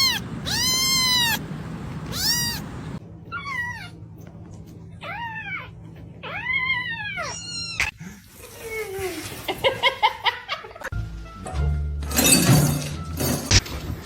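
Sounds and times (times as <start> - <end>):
cat meowing: 0.0 - 4.0, 5.0 - 7.9.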